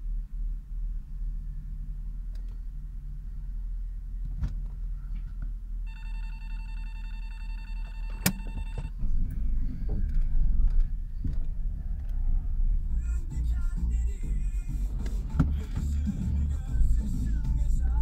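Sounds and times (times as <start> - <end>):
electronic ringing tone: 5.8 - 9.0
car engine idling: 8.2 - 18.0.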